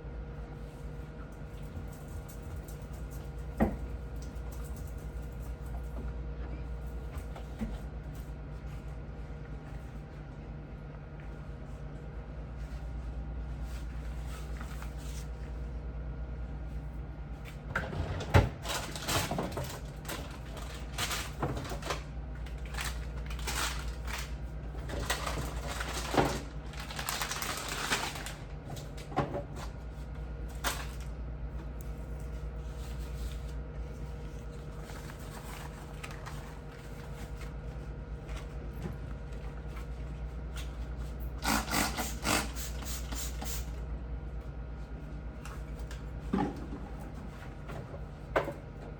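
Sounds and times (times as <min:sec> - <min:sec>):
steady low hum: 0:00.0 - 0:17.7.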